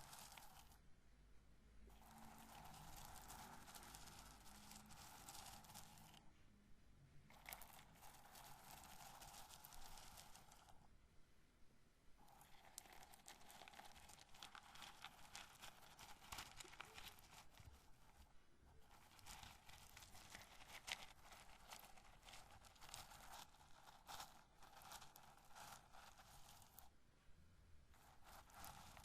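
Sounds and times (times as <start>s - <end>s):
corn kernels clicking and rustling: 0.0s - 0.8s, 1.9s - 6.2s, 7.3s - 10.8s, 12.2s - 26.9s, 28.0s - 29.0s.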